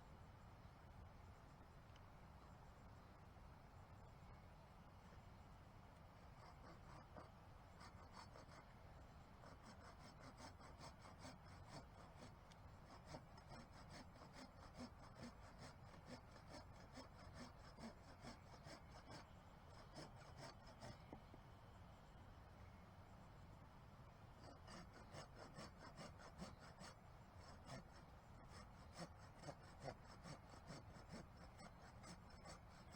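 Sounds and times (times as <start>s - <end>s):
hand tool scraping strokes: 9.4s - 21.1s, 24.4s - 32.9s.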